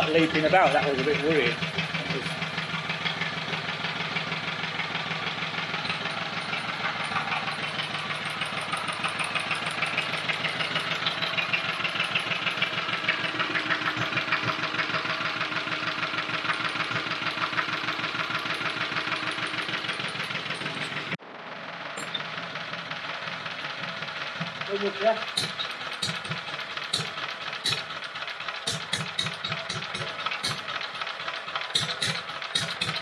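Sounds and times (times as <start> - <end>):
stationary engine idling: 0.0 - 33.0.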